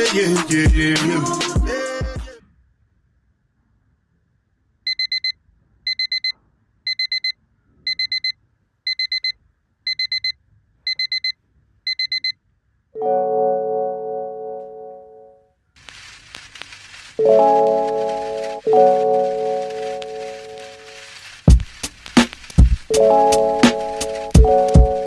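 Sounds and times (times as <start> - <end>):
digital alarm clock beeping: 4.9 - 12.4.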